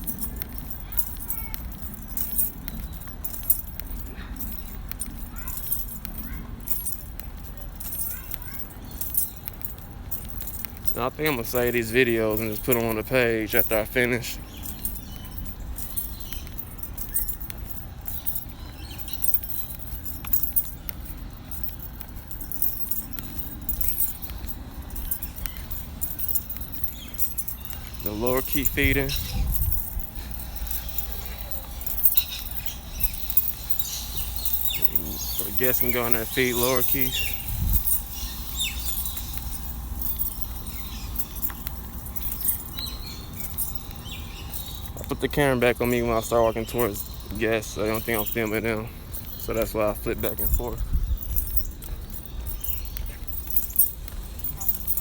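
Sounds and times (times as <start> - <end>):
metallic jingling and rattling: 0.0 - 55.0
steady low rumble: 14.3 - 55.0
high falling bird calls: 24.2 - 53.9.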